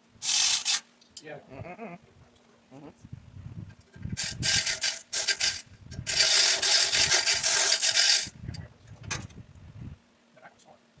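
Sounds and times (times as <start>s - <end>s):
welder crackling hiss: 0.2s - 0.8s.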